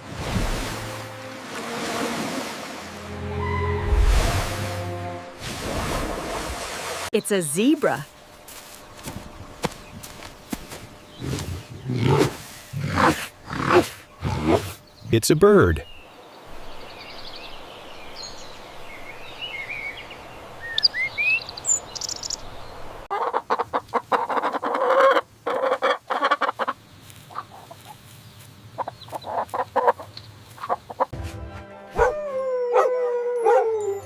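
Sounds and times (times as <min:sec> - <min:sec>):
small birds chirping: 0:07.2 - 0:12.8, 0:13.4 - 0:23.1, 0:26.1 - 0:31.1
hen clucking: 0:23.1 - 0:28.0, 0:28.8 - 0:31.1
dog howling: 0:32.0 - 0:34.0.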